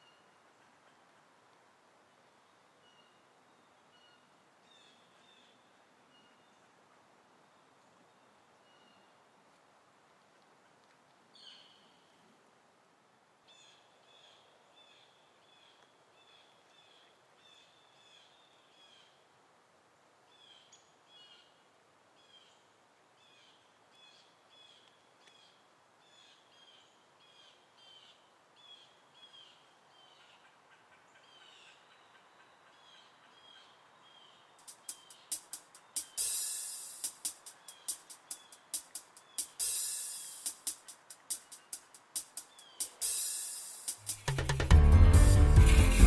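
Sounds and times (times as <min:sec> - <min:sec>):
quiet hiss: 0:00.0 - 0:46.0
faint bird chirps: 0:02.4 - 0:06.8, 0:07.4 - 0:09.2, 0:11.3 - 0:12.3, 0:20.3 - 0:44.4.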